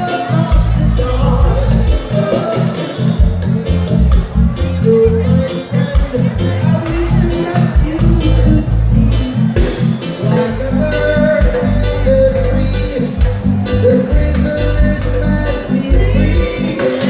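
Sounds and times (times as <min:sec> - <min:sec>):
live band playing latin groove: 0:00.0 - 0:17.0.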